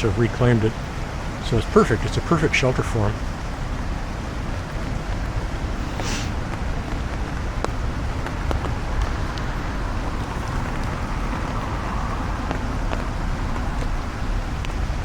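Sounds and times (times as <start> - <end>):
steady rain: 0.0 - 15.0
wind rumble on microphone: 3.2 - 15.0
raindrops tapping on umbrella: 4.6 - 15.0.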